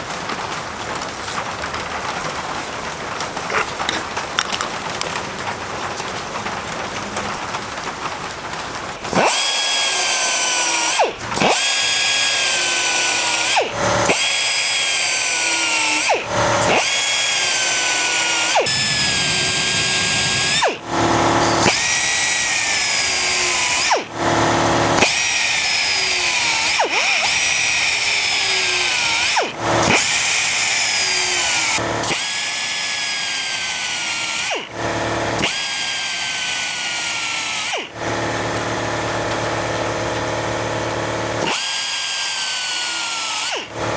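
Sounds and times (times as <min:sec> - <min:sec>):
power tool motor whine: 0:09.0 - 0:43.9.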